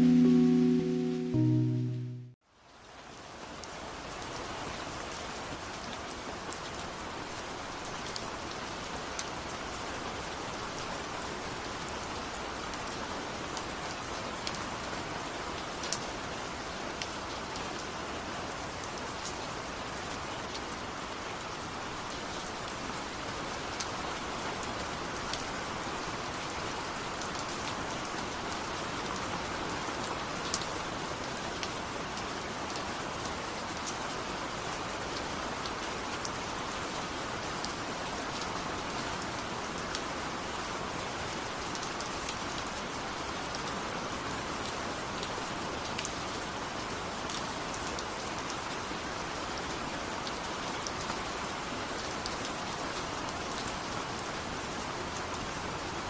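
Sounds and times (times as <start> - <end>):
steady rain: 0.0 - 56.0
raindrops ticking on a surface: 2.6 - 18.0, 18.6 - 36.7, 41.4 - 54.4.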